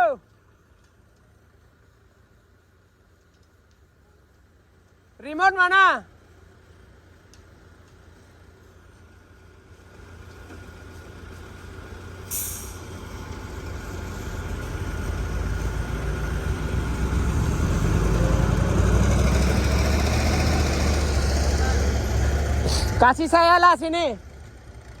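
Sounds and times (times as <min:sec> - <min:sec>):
diesel engine rumbling: 0:00.0 - 0:25.0
short hiss of air: 0:12.2 - 0:13.3, 0:22.6 - 0:23.0.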